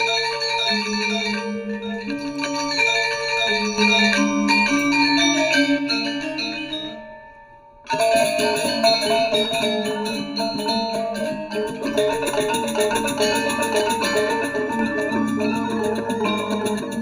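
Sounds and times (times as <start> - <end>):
gamelan metallophones playing: 0.0 - 17.0.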